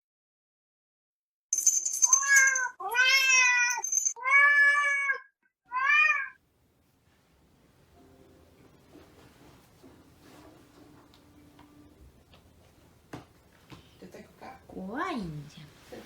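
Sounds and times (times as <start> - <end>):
cat meowing: 2.2 - 6.4.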